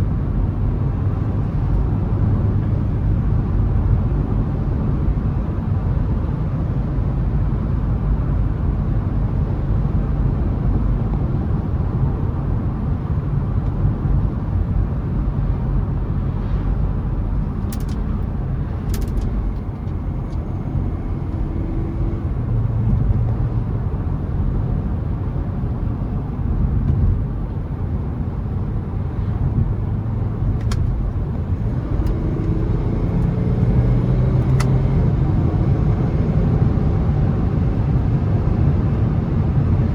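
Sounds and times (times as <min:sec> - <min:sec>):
diesel car engine running: 0:00.0 - 0:39.9
tyre and road noise: 0:09.6 - 0:39.9.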